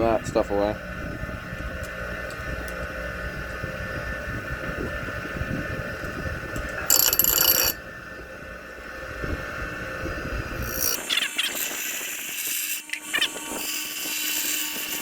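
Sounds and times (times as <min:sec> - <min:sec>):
power grinder motor running: 0:06.6 - 0:07.8, 0:10.5 - 0:11.0
harsh grinding burst: 0:06.9 - 0:07.8, 0:10.6 - 0:11.0.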